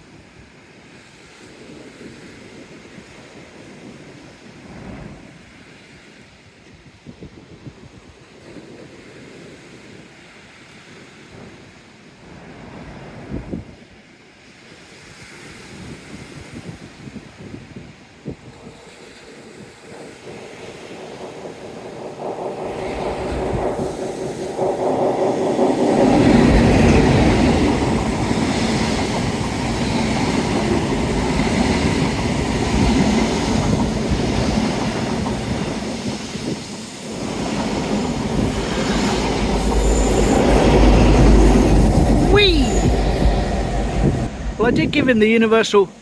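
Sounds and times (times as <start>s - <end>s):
train passing: 18.5s - 46.0s.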